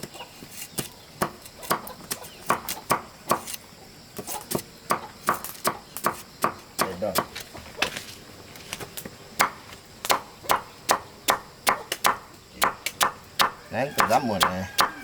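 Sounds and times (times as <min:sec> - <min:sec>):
blade chopping: 0:09.4 - 0:15.0.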